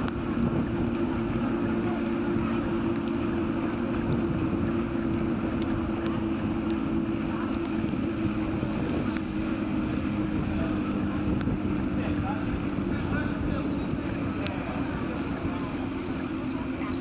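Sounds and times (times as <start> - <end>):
steady low hum: 0.0 - 17.0
wind rumbling on microphone: 0.0 - 17.0.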